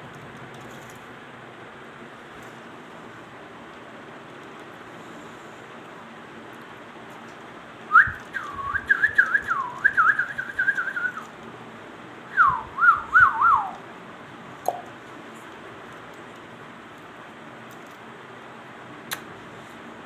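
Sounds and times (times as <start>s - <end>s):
parrot whistling: 7.9s - 11.3s, 12.3s - 13.8s.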